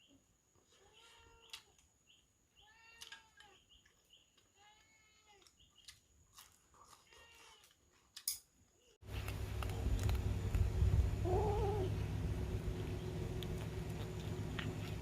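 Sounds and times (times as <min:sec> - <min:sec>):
low hum: 0:09.0 - 0:15.0
faint animal calls: 0:11.2 - 0:12.0.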